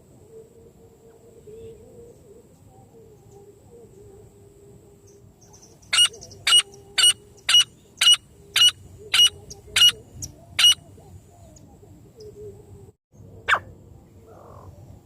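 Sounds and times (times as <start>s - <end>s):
francolin calling: 5.0s - 12.8s.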